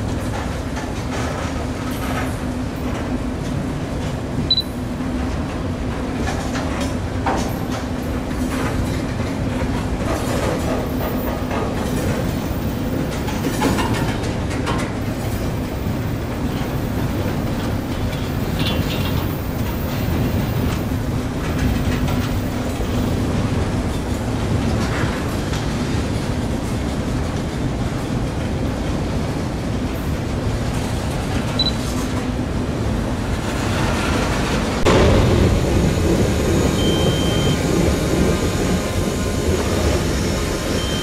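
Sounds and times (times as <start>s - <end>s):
wheels clicking over rail joints: 0.0s - 28.9s
freight train rumble: 0.0s - 41.0s.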